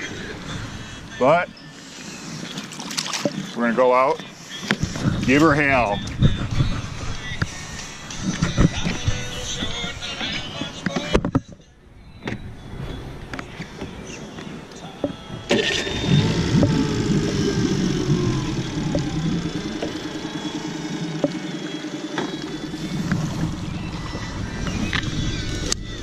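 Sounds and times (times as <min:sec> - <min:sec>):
outboard motor running: 0:15.4 - 0:26.0.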